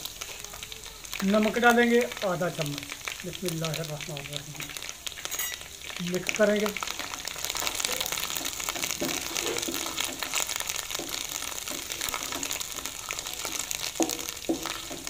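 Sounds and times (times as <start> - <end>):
spices sizzling in hot oil: 0.0 - 15.0
wooden spoon scraping a pan: 6.7 - 15.0.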